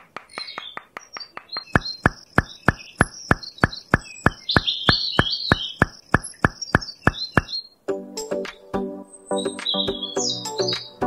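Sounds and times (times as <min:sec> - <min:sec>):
rapid sharp clicks: 0:00.0 - 0:07.5
birds chirping: 0:00.0 - 0:07.8, 0:09.1 - 0:11.0.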